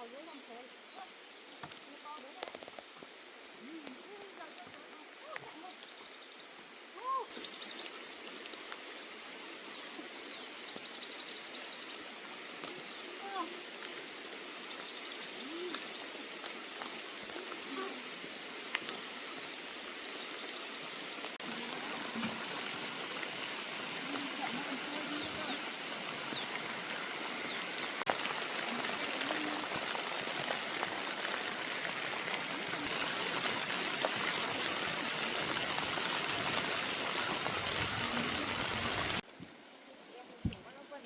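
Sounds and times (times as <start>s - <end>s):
heavy rain falling: 20.5s - 39.2s.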